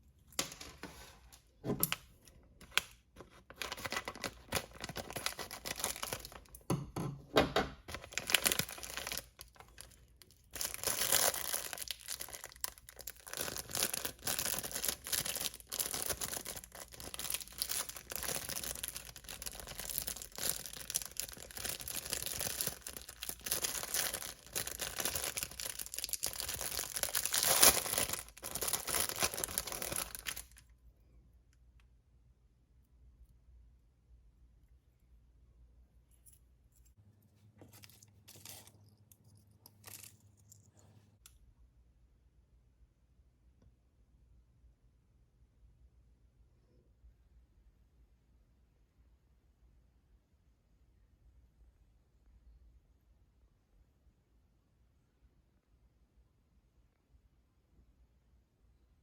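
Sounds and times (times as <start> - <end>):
packaging tearing and crinkling: 2.6 - 6.5, 7.9 - 30.6.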